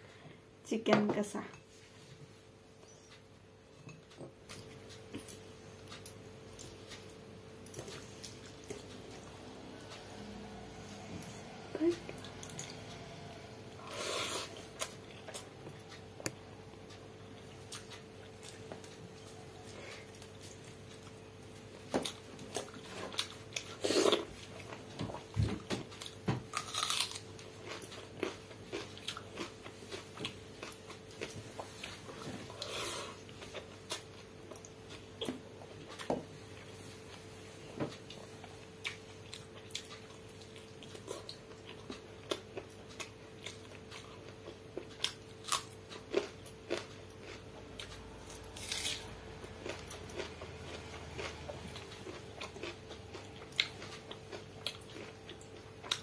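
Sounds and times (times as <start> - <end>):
person chewing and lip smacking: 25.9 - 36.7, 37.9 - 56.0.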